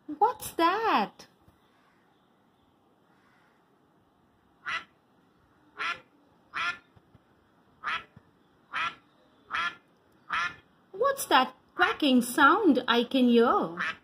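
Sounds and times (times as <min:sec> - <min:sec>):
duck quacking: 0:04.6 - 0:04.9, 0:05.8 - 0:06.9, 0:07.8 - 0:08.1, 0:08.7 - 0:10.6, 0:13.8 - 0:14.0.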